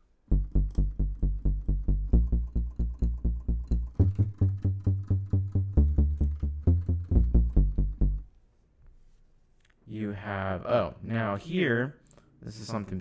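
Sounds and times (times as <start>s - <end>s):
synth bass repeated low notes: 0.0s - 8.3s.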